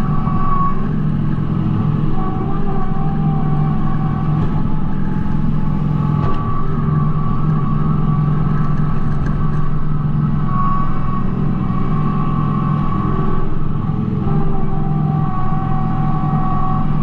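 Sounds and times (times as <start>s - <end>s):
high whine: 0.0s - 17.0s
tractor diesel engine running: 3.2s - 10.2s.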